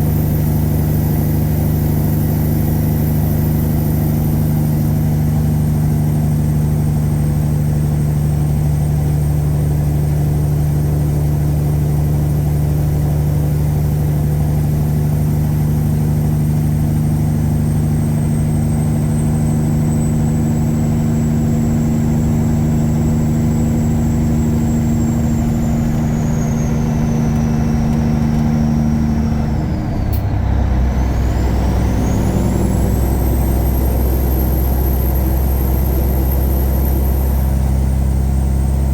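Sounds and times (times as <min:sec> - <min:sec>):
truck diesel engine pulling: 0:17.2 - 0:38.9.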